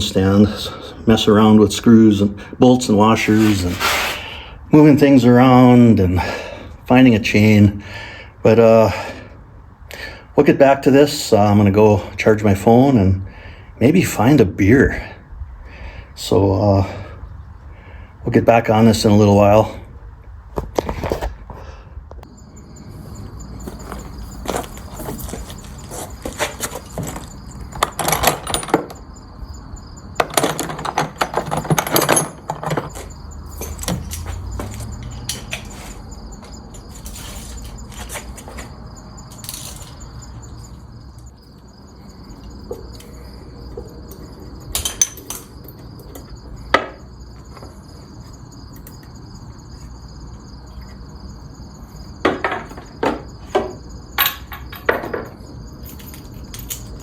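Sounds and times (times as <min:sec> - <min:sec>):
high-pitched insect drone: 0:22.2 - 0:30.3, 0:32.2 - 0:57.0
clanks knocks and rattles: 0:23.7 - 0:29.1, 0:30.2 - 0:35.8, 0:52.2 - 0:57.0.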